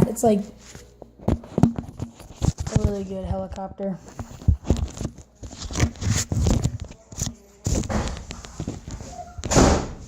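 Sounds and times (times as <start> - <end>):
microphone handling noise: 1.2 - 10.0.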